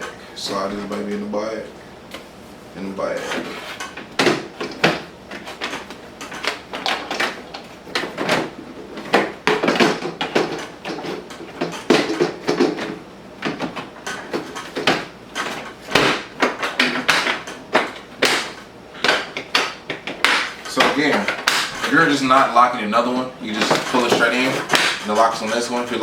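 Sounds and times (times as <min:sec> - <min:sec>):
plastic case knocks and scrapes: 0:03.4 - 0:22.4.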